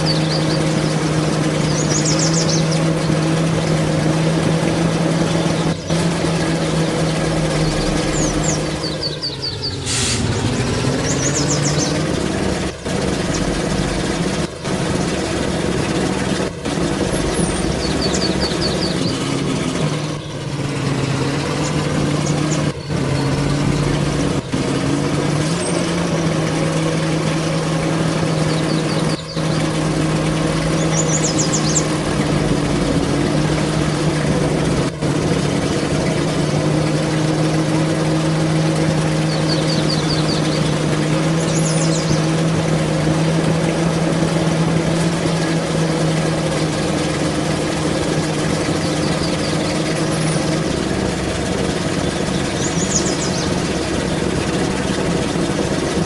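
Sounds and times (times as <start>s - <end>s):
high chirping trills: 0.0s - 3.1s, 6.6s - 12.1s, 17.0s - 20.5s, 28.3s - 32.8s, 39.2s - 42.3s, 51.9s - 53.9s
truck engine running: 0.0s - 56.0s.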